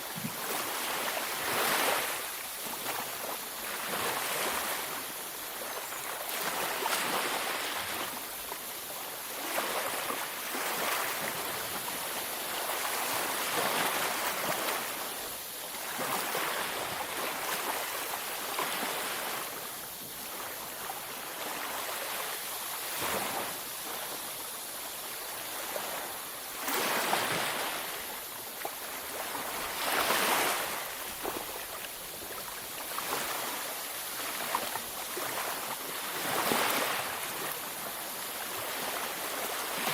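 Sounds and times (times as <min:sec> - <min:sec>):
ocean waves breaking: 0:00.4 - 0:03.0, 0:28.9 - 0:39.9.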